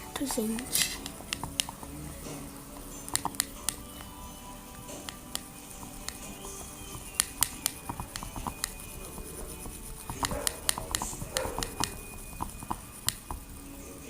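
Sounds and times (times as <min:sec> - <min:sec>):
slime being stirred: 0:00.0 - 0:13.8.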